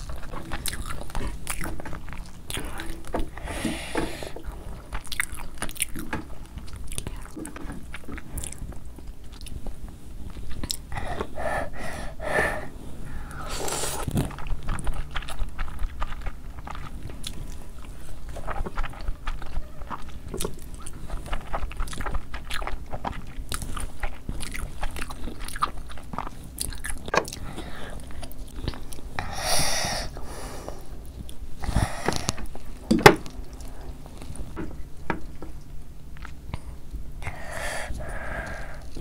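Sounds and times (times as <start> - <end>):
wet chewing mouth sounds: 0.0 - 39.0
noodle slurp: 12.5 - 16.9.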